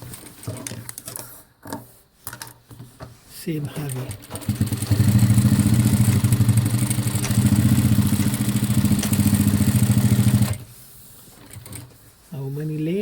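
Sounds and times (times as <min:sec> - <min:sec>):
sewing machine stitching fast: 0:03.8 - 0:10.7, 0:11.4 - 0:11.9.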